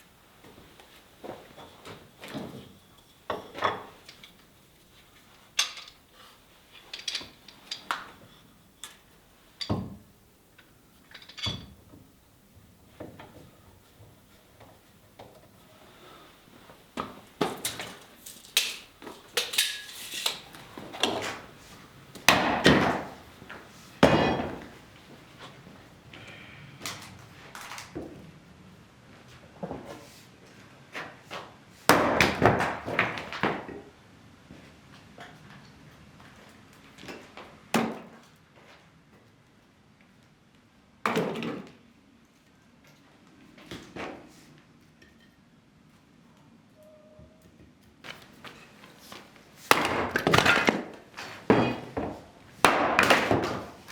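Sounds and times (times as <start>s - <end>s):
hard objects knocking and clattering: 17.0s - 25.2s.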